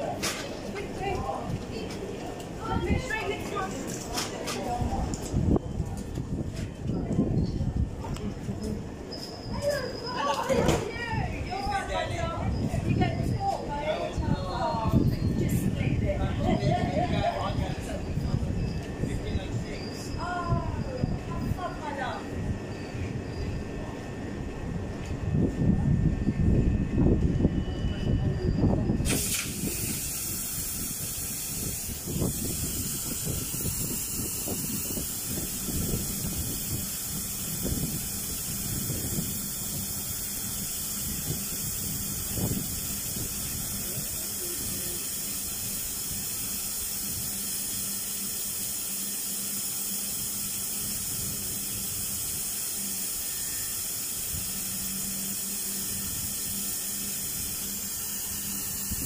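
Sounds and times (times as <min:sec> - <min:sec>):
train hissing: 0:26.7 - 0:59.0.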